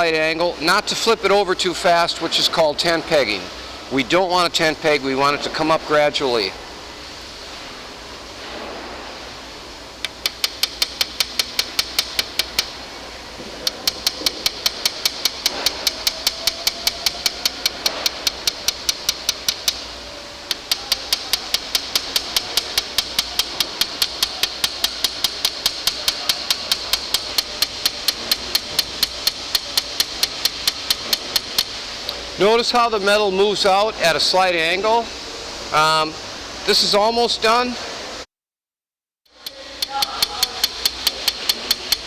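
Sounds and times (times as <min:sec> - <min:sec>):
hammer tapping metal punch: 0:10.0 - 0:12.8, 0:13.6 - 0:31.8, 0:39.3 - 0:42.0.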